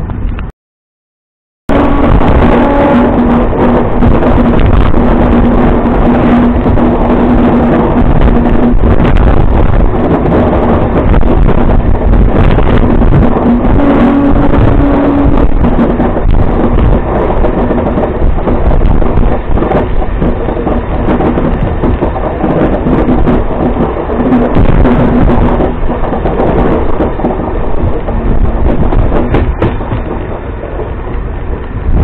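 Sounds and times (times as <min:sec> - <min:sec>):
humming tone: 0:01.7 - 0:08.8, 0:13.1 - 0:17.0
train wheels rumbling: 0:01.7 - 0:32.0.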